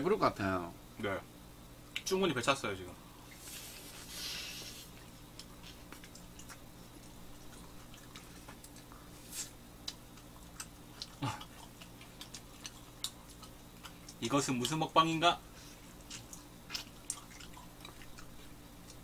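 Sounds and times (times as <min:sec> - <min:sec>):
chewing mouth sounds: 0:04.9 - 0:14.8, 0:15.8 - 0:19.0.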